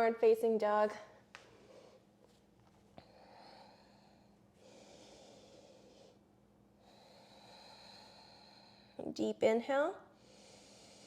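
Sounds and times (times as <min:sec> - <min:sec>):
slow breathing: 0:03.0 - 0:09.0, 0:10.1 - 0:11.0.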